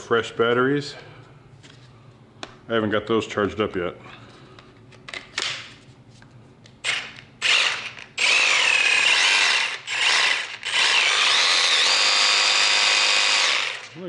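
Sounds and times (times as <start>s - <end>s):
reciprocating saw running: 6.9s - 14.0s.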